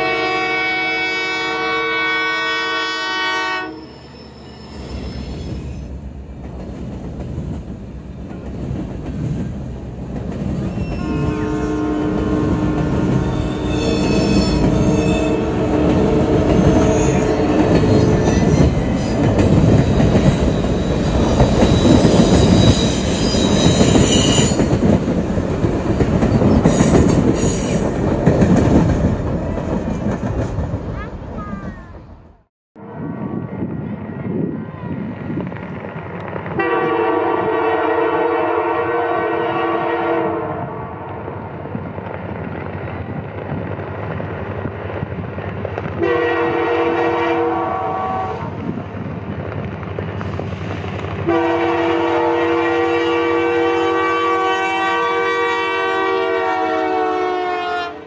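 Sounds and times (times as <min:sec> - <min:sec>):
locomotive horn: 0:00.0 - 0:03.9, 0:10.8 - 0:18.4, 0:36.6 - 0:41.0, 0:46.0 - 0:48.5, 0:51.2 - 0:58.0
train wheels rumbling on rail: 0:03.6 - 0:58.0
high wheel squeals: 0:03.8 - 0:06.0, 0:10.5 - 0:11.8, 0:13.2 - 0:15.6, 0:16.5 - 0:24.8.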